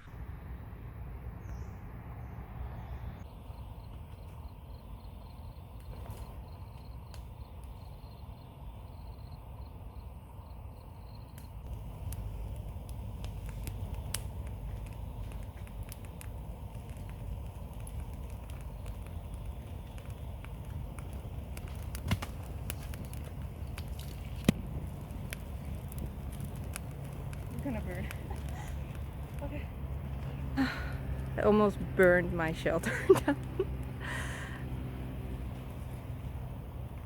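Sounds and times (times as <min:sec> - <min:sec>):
low steady rumble: 0:00.0 - 0:37.0
campfire crackling and popping: 0:03.2 - 0:37.0.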